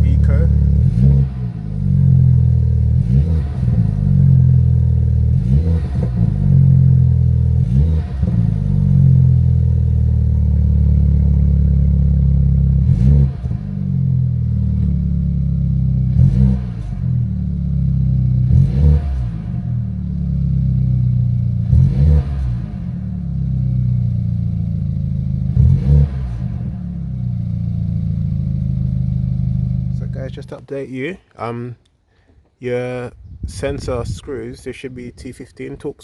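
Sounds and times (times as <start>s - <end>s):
car engine revving: 0.0s - 30.6s.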